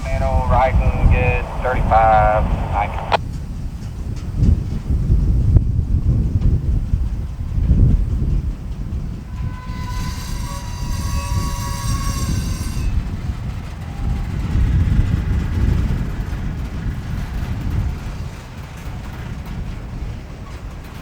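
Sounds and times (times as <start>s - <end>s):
freight cars rumbling: 0.0s - 3.2s
steel wheels squealing on rail: 8.8s - 15.4s.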